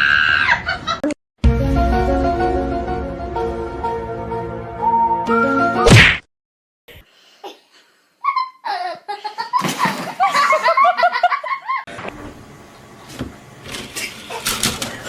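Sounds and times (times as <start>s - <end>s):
person laughing hard: 8.2s - 11.9s.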